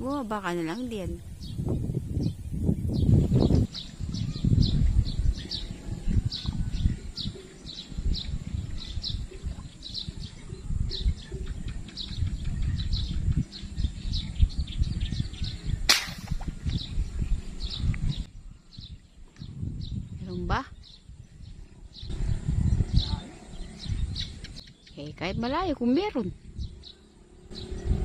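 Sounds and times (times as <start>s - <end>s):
low rumbling noise: 0.0s - 24.6s, 25.2s - 28.0s
bird chirping: 0.0s - 28.0s
air rifle shot: 15.9s - 16.6s.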